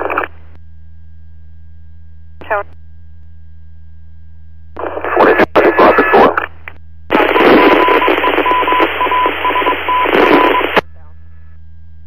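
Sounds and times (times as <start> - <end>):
radio static hiss: 0.0 - 0.5, 2.4 - 2.8, 4.7 - 11.6
broken beeping tone: 7.2 - 10.8.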